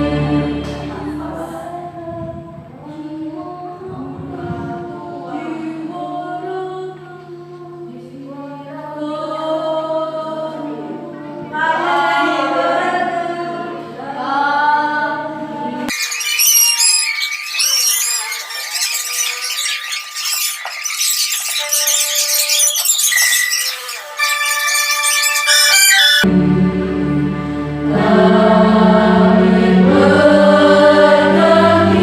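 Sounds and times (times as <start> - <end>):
choir singing: 0.0 - 2.1, 3.5 - 7.0, 7.8 - 15.9, 24.1 - 32.0
hissy high-pitched sound: 17.7 - 26.3.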